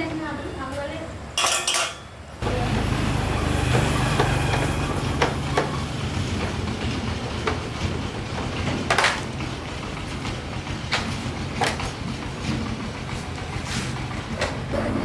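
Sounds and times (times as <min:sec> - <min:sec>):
motorbike engine idling: 0:02.4 - 0:15.0.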